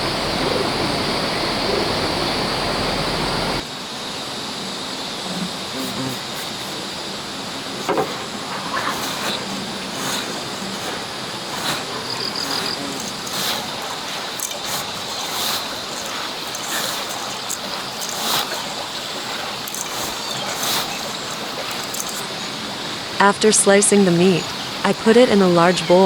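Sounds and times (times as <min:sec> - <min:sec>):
steady rushing noise: 0:00.0 - 0:05.8.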